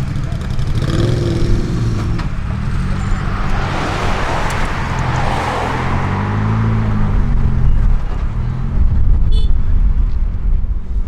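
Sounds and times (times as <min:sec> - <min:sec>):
engines idling: 0:00.0 - 0:10.1
car driving past: 0:00.8 - 0:09.0.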